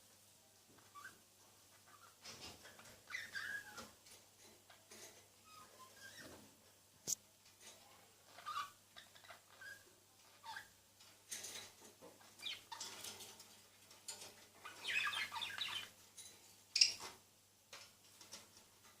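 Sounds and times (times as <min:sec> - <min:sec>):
budgerigars chirping and chattering: 0:01.8 - 0:03.9, 0:12.2 - 0:13.1, 0:14.6 - 0:16.0, 0:16.8 - 0:17.1.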